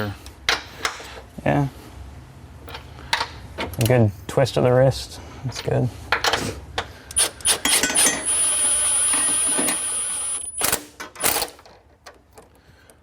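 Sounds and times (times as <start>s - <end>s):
cordless power tool whining: 7.2s - 10.8s.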